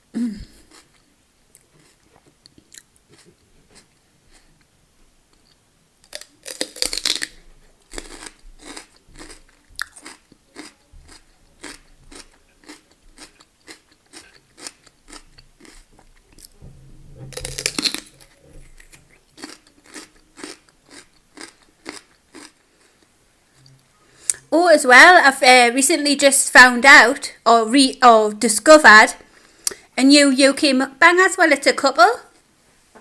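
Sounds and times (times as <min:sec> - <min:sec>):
chewing: 0:00.6 - 0:04.6, 0:05.3 - 0:16.6, 0:17.3 - 0:24.4
crunching bite: 0:06.0 - 0:16.6, 0:17.3 - 0:23.0.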